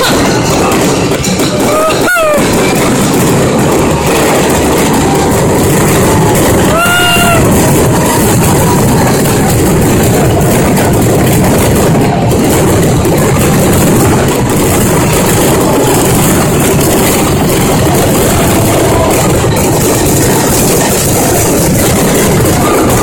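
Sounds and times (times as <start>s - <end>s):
fireworks bursting: 0.0s - 23.0s.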